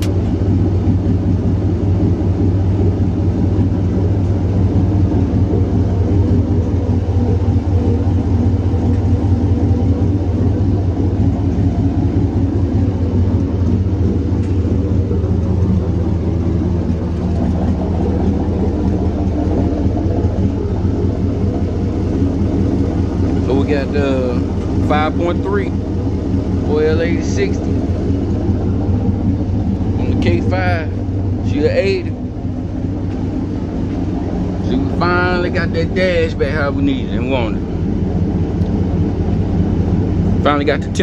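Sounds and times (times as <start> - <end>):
car engine idling: 0.0 - 41.0.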